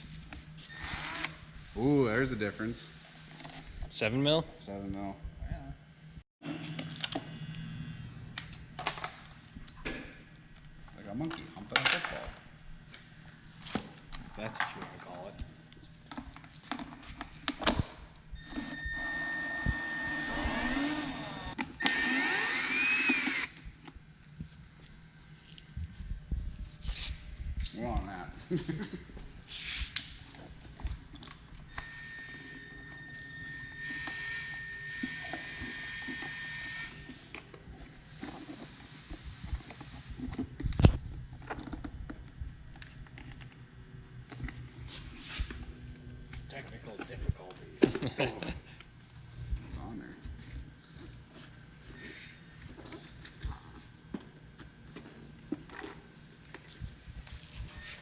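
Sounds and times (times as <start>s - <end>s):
electric power tool whining: 0.7s - 1.4s, 18.4s - 23.6s, 31.7s - 37.2s.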